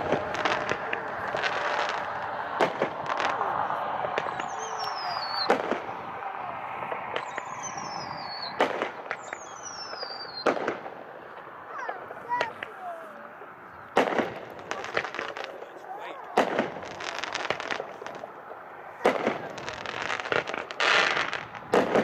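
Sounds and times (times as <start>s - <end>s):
fireworks bangs: 0.0s - 22.0s
fireworks whistles falling in pitch: 4.1s - 6.2s, 6.8s - 10.8s.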